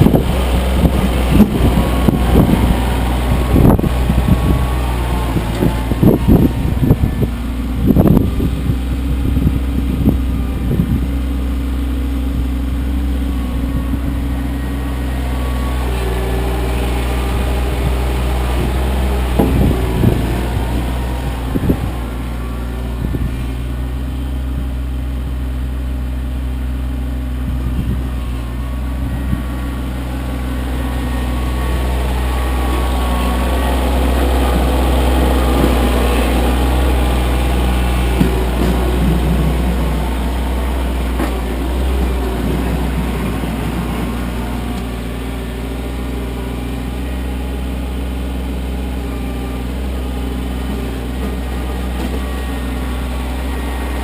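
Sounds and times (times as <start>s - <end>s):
tractor diesel engine running: 0.0s - 54.0s
knocks and clunks: 18.5s - 20.9s, 37.9s - 40.3s.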